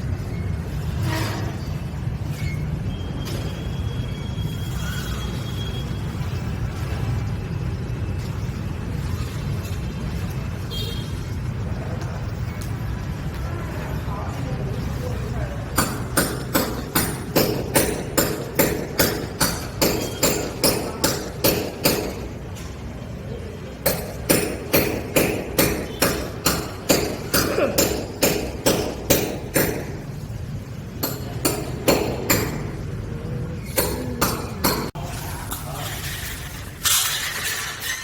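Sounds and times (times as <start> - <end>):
noisy scrape: 0.7 - 2.9
hammer striking: 15.7 - 22.4, 23.8 - 30.2, 31.0 - 32.8, 33.6 - 35.0.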